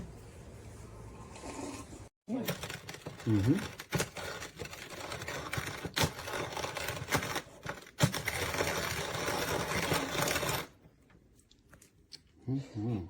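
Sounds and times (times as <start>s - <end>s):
hand-cranked coffee grinder: 2.3s - 10.8s.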